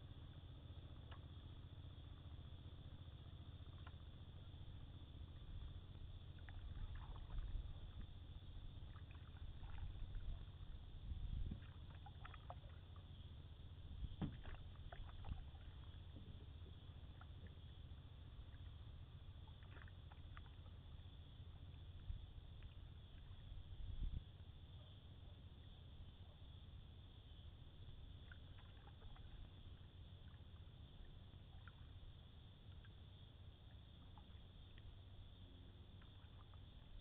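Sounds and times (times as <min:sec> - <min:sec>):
steady low rumble: 0:00.0 - 0:37.0
paddle strokes in water: 0:03.6 - 0:37.0
light knocks: 0:14.2 - 0:14.6.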